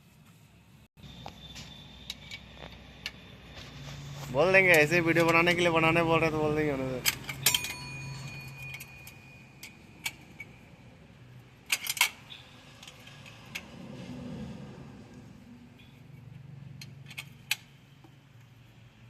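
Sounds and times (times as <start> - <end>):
metallic clinks and taps: 7.0 - 10.6.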